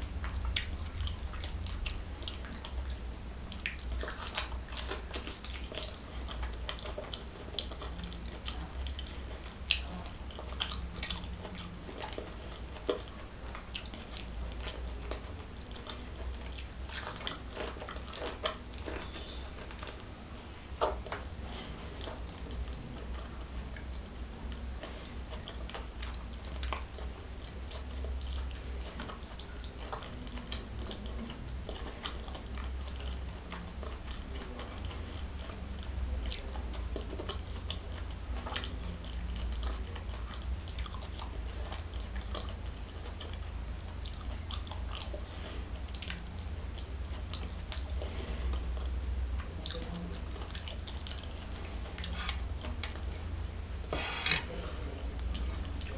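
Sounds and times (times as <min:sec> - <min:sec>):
person chewing food: 0:00.0 - 0:55.9
wet mouth clicks: 0:20.8 - 0:21.1.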